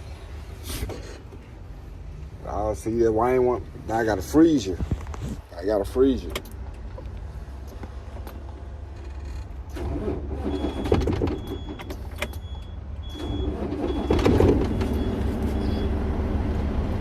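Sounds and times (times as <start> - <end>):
truck engine idling: 5.4 - 17.0.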